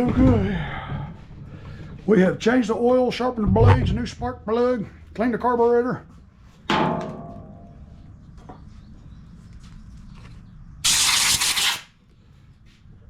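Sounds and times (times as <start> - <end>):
hissing spray burst: 10.8 - 11.9.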